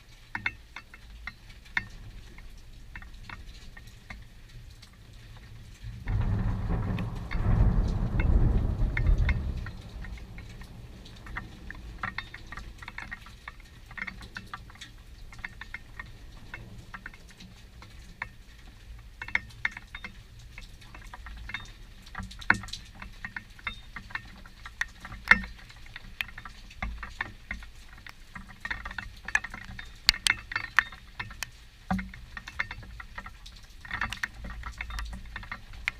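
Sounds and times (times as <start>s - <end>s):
raindrops pattering: 0.0s - 35.9s
sharp loud drips: 0.4s - 35.9s
thunder rumbling: 5.4s - 19.1s.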